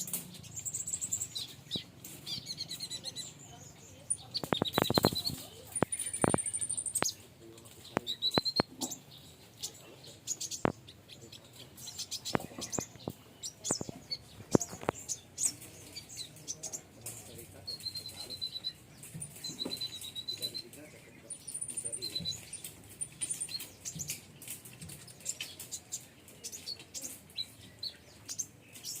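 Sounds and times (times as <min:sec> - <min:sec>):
bird trills and clicks: 0:00.0 - 0:29.0
birds chirping: 0:00.0 - 0:29.0
wings fluttering: 0:04.3 - 0:09.9, 0:12.0 - 0:20.9.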